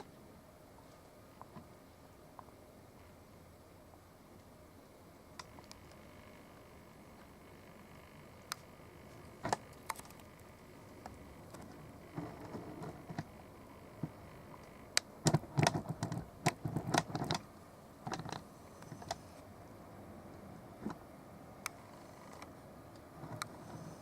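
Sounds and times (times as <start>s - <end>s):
low steady background: 0.0s - 24.0s
sharp clicks and knocks: 15.0s - 19.2s.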